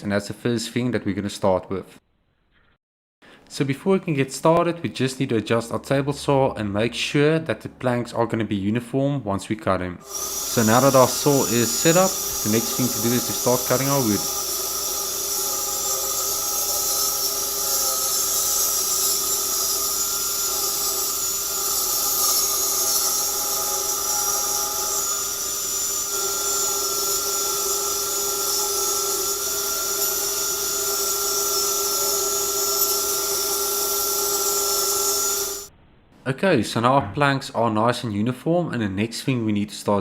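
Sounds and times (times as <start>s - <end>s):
table saw cutting wood: 10.0s - 35.7s.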